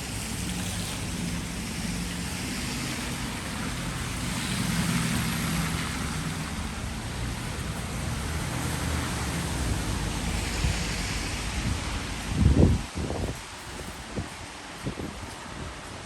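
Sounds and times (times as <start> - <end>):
passing vehicle engines humming: 0.0 - 12.7
tyres hissing on wet road: 0.0 - 16.0.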